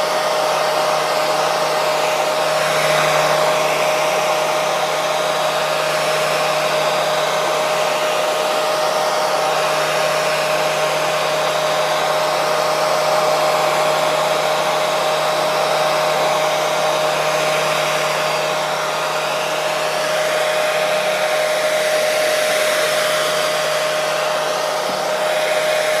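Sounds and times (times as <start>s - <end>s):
hair dryer blowing: 0.0s - 26.0s.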